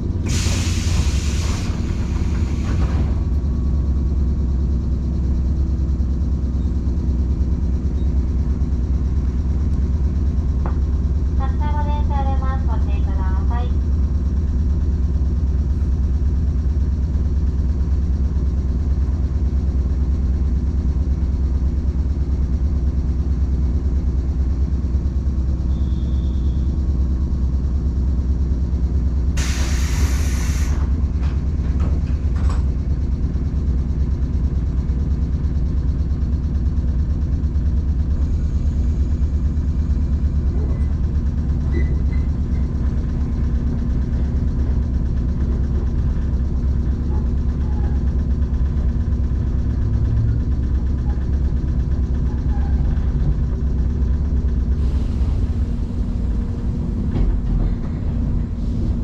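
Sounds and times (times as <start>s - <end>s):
train machinery humming: 0.0s - 59.0s
loud hiss: 0.3s - 2.9s, 29.4s - 30.9s.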